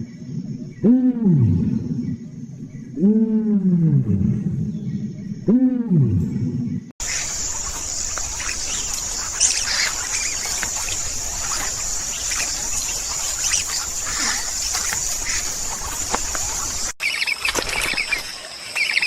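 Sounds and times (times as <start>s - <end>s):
birds chirping and calling: 4.5s - 19.0s.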